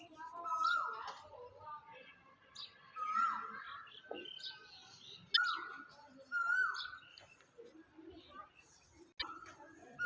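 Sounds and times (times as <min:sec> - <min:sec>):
faint high bird chirps: 0:02.4 - 0:10.0.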